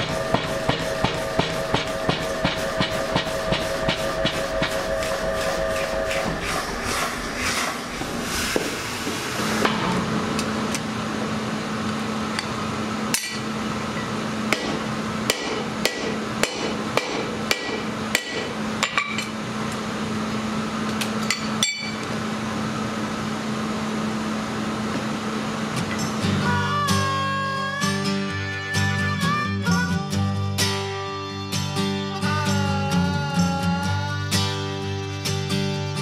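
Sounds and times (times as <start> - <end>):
hammer ringing on anvil: 0.0 - 4.8, 14.5 - 19.3, 21.3 - 22.1
low machine hum: 0.0 - 36.0.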